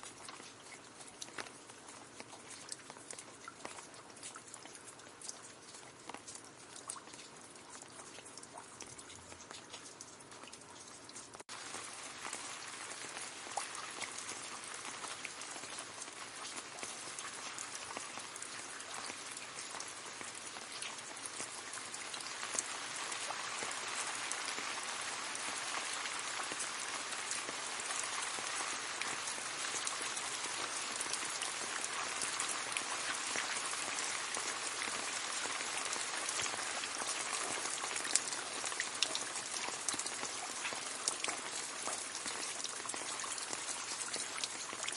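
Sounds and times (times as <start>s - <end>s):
rain falling on leaves: 0.0s - 44.9s
water drips ticking: 0.0s - 44.9s.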